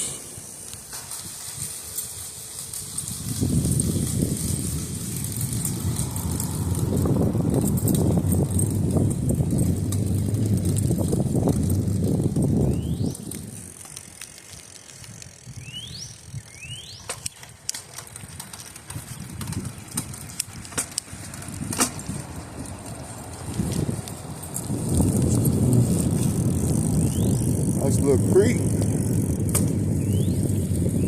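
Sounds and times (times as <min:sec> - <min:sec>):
bicycle clicks and rattles: 0:00.1 - 0:31.0
wind buffeting microphone: 0:00.4 - 0:31.0
bird chirping: 0:15.6 - 0:17.5.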